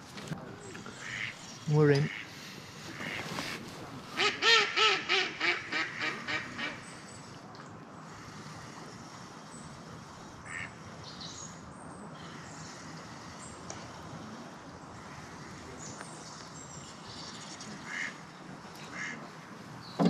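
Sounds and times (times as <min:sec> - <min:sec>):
duck quacking: 0:18.9 - 0:19.2.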